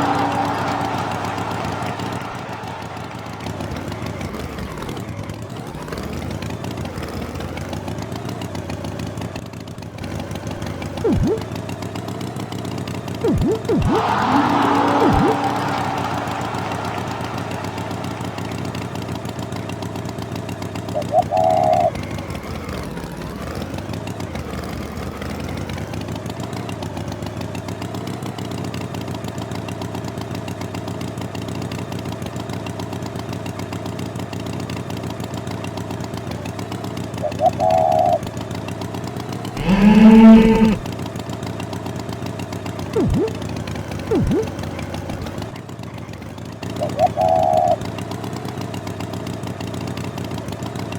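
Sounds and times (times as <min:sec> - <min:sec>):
engine humming: 0:00.0 - 0:12.4, 0:13.1 - 0:25.2, 0:39.4 - 0:40.9, 0:43.0 - 0:45.5
short high tones: 0:11.1 - 0:11.4, 0:13.3 - 0:16.4, 0:43.0 - 0:43.4, 0:44.1 - 0:44.5
cow mooing: 0:39.6 - 0:40.8.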